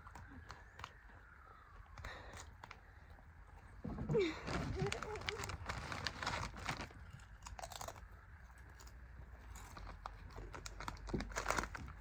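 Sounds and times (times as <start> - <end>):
person chewing crunchy snacks: 6.8 - 12.0.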